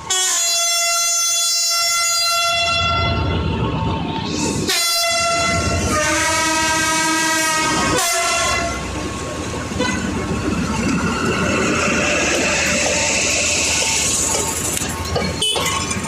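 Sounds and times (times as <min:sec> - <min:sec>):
locomotive air horn blasts: 0:00.0 - 0:03.3, 0:04.5 - 0:08.9, 0:15.4 - 0:15.8
low train rumble: 0:00.0 - 0:16.0.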